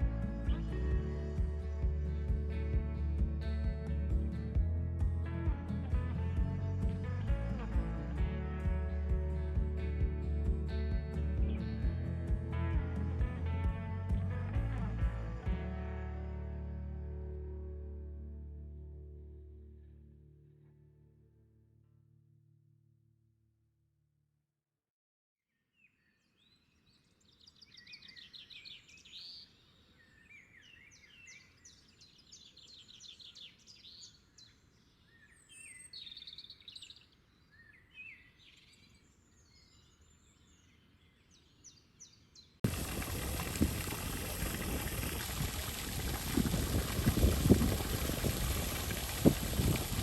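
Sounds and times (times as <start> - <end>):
songbirds chirping: 25.8 - 50.0
wind on microphone: 42.6 - 50.0.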